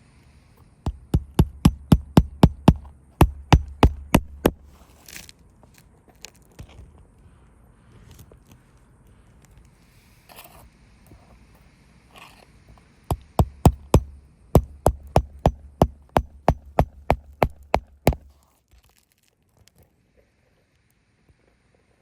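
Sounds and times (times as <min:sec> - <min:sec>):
sharp knocks: 0:00.9 - 0:04.8, 0:13.1 - 0:18.3
faint scrapes: 0:07.2 - 0:12.8.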